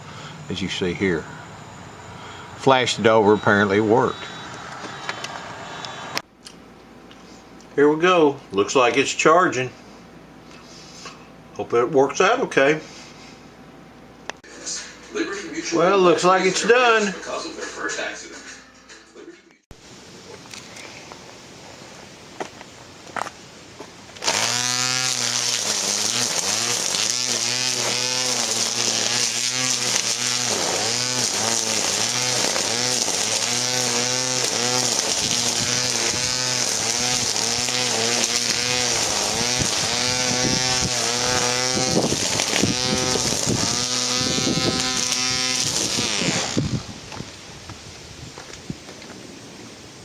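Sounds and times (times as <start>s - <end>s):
string trimmer motor running: 24.2s - 46.9s.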